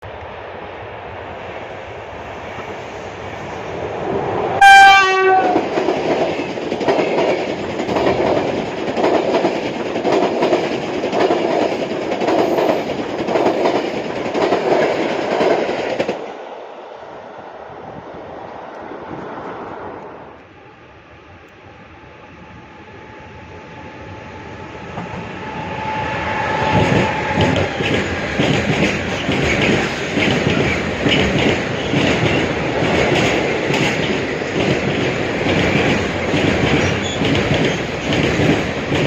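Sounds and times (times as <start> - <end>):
train coaches rushing by: 0.0 - 39.0
train horn blast: 4.6 - 5.6
wheels clacking over rail joints: 4.8 - 16.3, 26.6 - 39.0.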